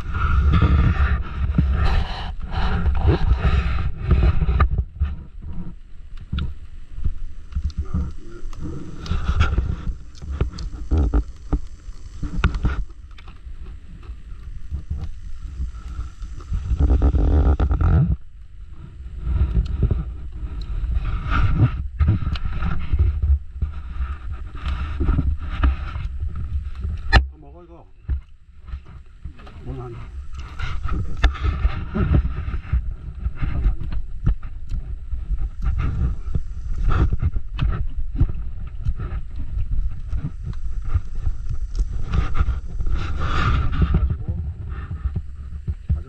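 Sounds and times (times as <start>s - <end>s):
sharp clicks and rustles: 0.0s - 18.5s
wind buffeting microphone: 0.0s - 46.0s.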